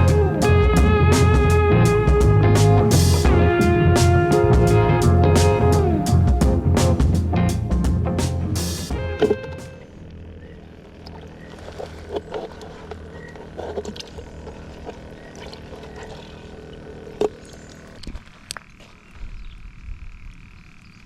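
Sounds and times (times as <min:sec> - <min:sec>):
high-pitched trill: 0:00.0 - 0:09.8
low hum: 0:00.0 - 0:21.0
frogs croaking: 0:09.0 - 0:21.0.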